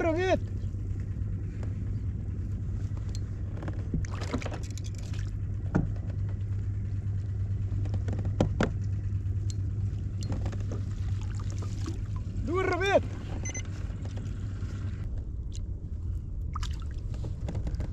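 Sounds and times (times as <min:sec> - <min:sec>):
steady low hum: 0:00.0 - 0:17.9
knocks and splashes: 0:04.0 - 0:05.3, 0:10.2 - 0:12.3, 0:16.5 - 0:17.3.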